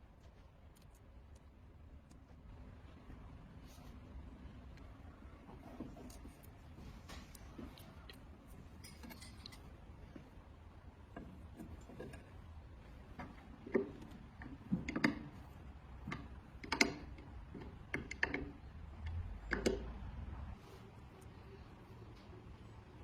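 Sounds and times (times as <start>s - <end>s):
light clicks and taps: 0.2s - 2.5s.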